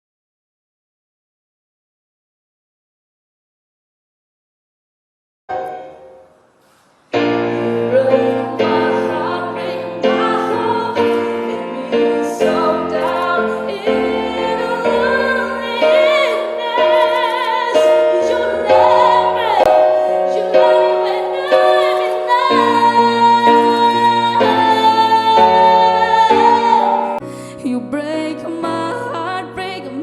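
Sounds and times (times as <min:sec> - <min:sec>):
piano chords: 0:05.5 - 0:30.0
woman singing a ballad: 0:07.2 - 0:30.0.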